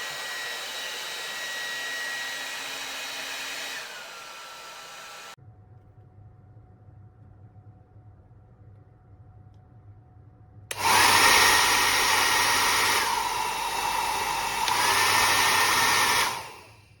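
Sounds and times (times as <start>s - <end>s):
hair dryer blowing: 0.0s - 5.4s, 10.7s - 17.0s
hair dryer switch: 0.0s - 5.4s, 10.7s - 16.8s.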